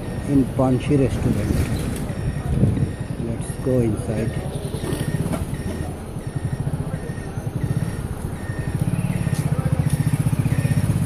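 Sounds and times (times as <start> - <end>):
motorcycle engine idling: 4.6 - 11.0.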